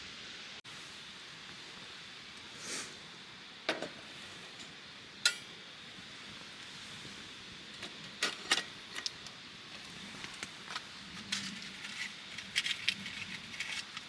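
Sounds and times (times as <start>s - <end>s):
small hard objects clinking: 8.2s - 14.0s.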